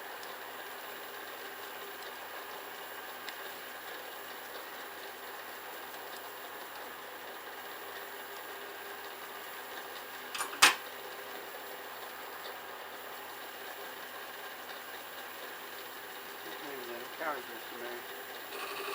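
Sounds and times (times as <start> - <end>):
small clicks: 10.4 - 10.8.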